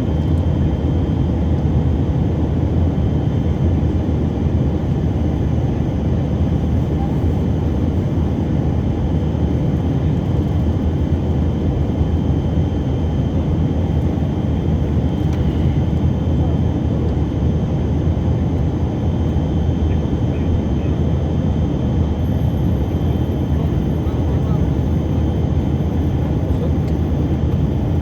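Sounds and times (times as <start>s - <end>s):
aircraft cabin roar: 0.0s - 28.0s
faint high whine: 21.8s - 28.0s.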